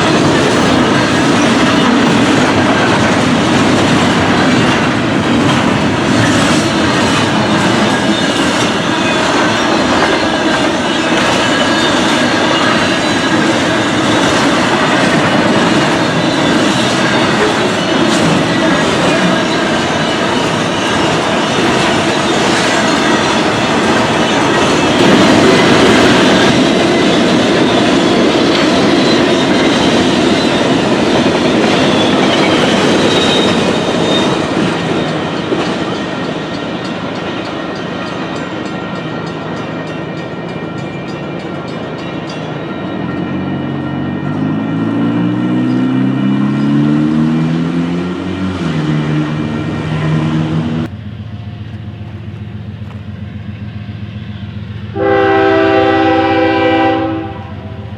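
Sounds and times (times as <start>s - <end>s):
train wheels clickety-clack: 0.0s - 57.9s
vehicle engine revving: 44.8s - 50.9s.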